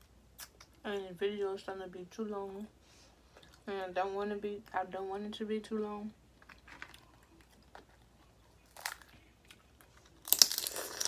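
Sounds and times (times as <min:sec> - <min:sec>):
shells crackling and crunching: 0:06.4 - 0:11.0.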